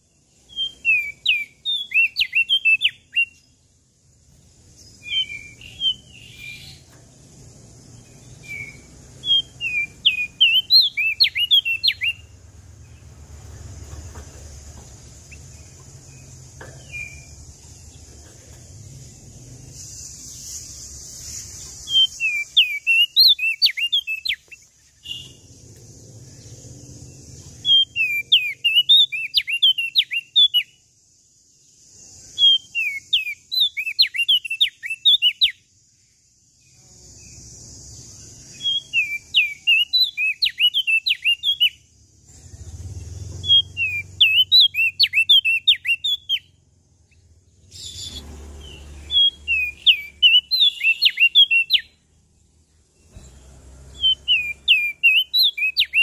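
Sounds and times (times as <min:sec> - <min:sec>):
songbird chirping: 0:00.0 - 0:56.0
steady high hiss: 0:03.0 - 0:27.8, 0:30.7 - 0:33.6.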